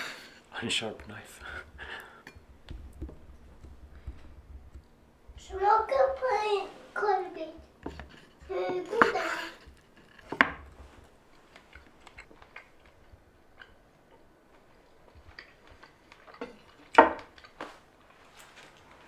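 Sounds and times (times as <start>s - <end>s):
person chewing: 11.3s - 17.9s.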